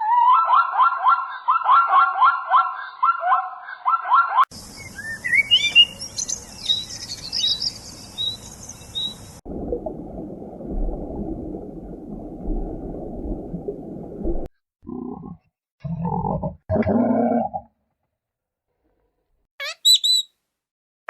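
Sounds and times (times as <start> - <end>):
birds chirping: 4.5 - 9.4, 19.6 - 20.3.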